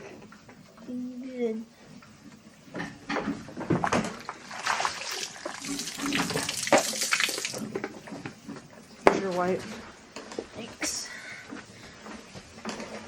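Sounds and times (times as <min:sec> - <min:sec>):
water running and splashing: 0:04.2 - 0:07.8.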